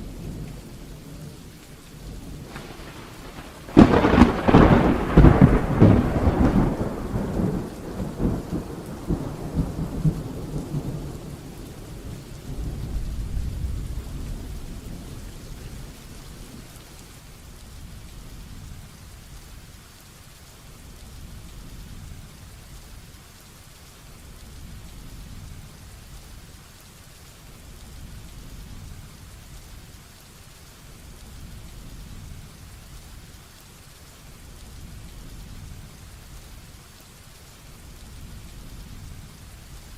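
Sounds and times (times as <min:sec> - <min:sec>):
thunder rumbling: 0:00.0 - 0:16.8
heavy rain: 0:00.0 - 0:39.9.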